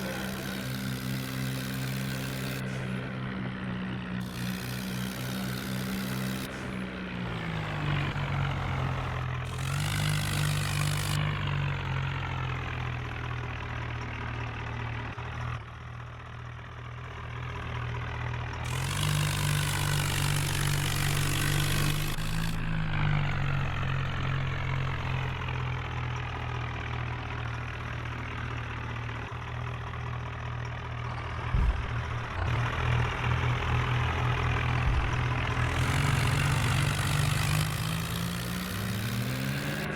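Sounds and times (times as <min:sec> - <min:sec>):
tractor diesel engine revving: 0:00.0 - 0:15.6, 0:17.4 - 0:39.9.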